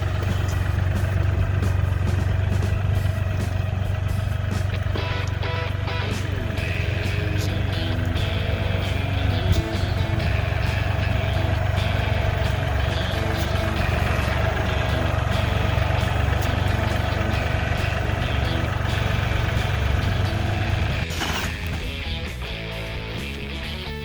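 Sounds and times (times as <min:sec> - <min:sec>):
rattles and knocks: 0:00.0 - 0:05.0, 0:08.0 - 0:22.2
vehicle engine running: 0:00.0 - 0:24.0.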